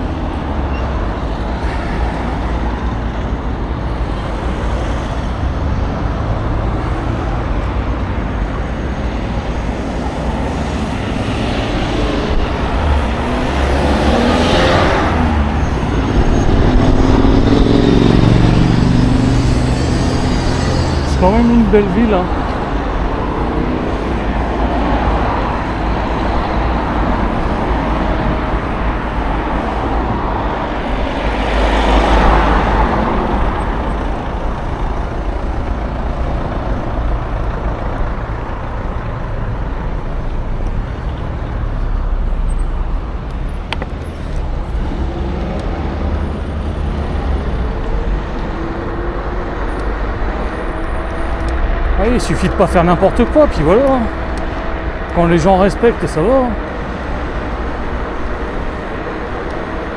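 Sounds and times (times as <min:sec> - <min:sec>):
scooter tyre and road noise: 0:00.0 - 0:59.9
wind rushing over microphone: 0:01.0 - 0:37.0.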